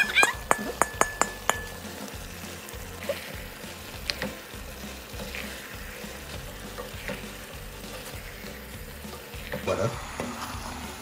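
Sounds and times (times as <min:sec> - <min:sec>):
wooden spoon knocking on pot: 0:00.0 - 0:01.8
food sizzling in a pot: 0:00.0 - 0:11.0.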